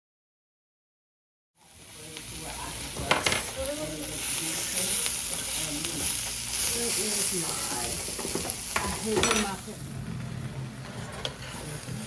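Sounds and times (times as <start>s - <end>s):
chicken sizzling in a pan: 1.6s - 10.0s.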